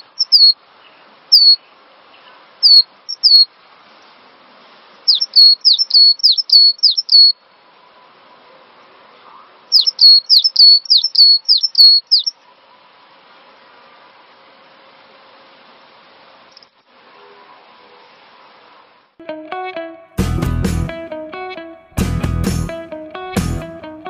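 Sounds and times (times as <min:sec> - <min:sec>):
bird singing sharp high notes: 0:00.0 - 0:00.6, 0:01.3 - 0:01.6, 0:02.6 - 0:03.5, 0:05.1 - 0:07.4, 0:09.7 - 0:12.4.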